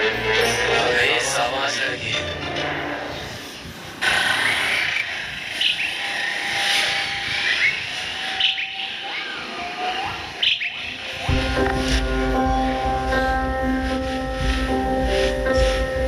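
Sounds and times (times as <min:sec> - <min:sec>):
outdoor ambience: 0:00.0 - 0:16.0
birds chirping: 0:03.1 - 0:16.0
lower whistled bird calls: 0:07.3 - 0:11.3.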